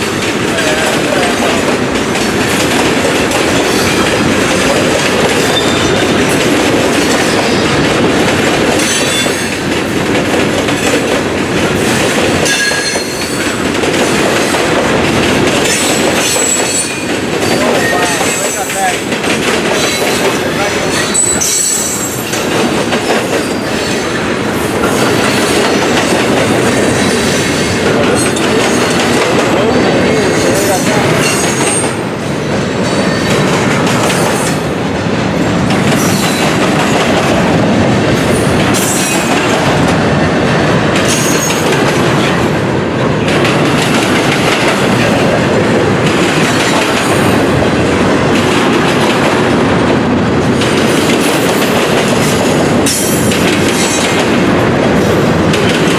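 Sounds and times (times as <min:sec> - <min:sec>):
train wheels clattering on rails: 0:00.0 - 0:55.9
high wheel squeal: 0:20.8 - 0:22.4.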